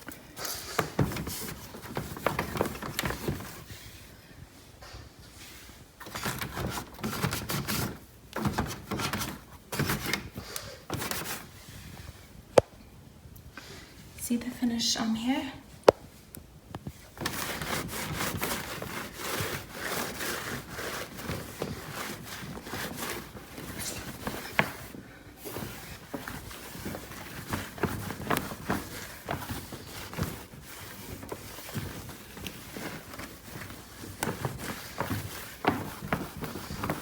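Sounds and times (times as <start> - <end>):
cloth scrubbing car surface: 17.2 - 37.0.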